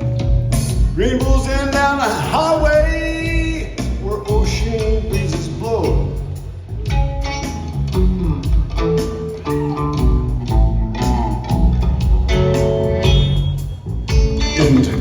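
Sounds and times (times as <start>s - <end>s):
bass guitar: 0.0s - 15.0s
drums: 0.0s - 15.0s
electric guitar notes: 6.7s - 15.0s.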